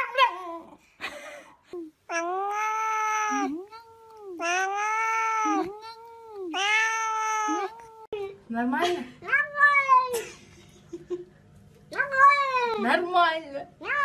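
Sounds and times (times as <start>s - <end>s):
cat yowling: 2.1s - 8.2s, 9.3s - 10.2s.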